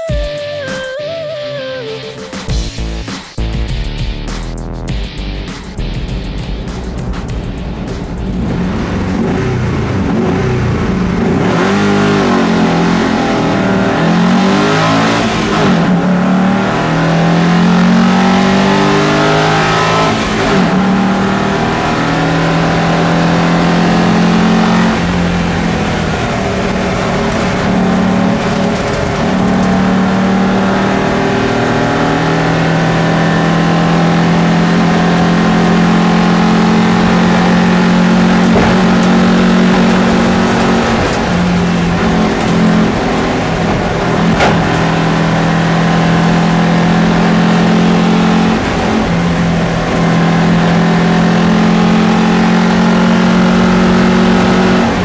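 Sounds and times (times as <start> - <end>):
racing car engine revving: 2.0 - 55.0.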